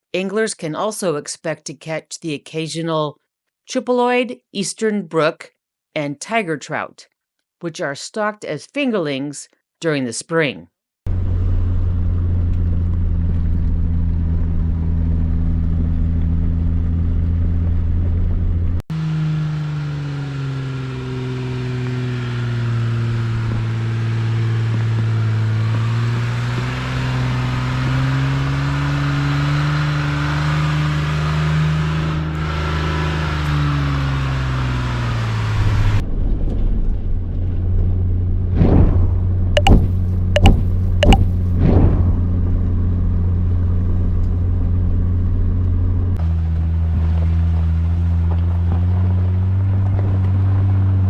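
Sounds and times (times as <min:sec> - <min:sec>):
off-road vehicle engine running: 0:11.1 - 0:36.0, 0:42.2 - 0:51.0.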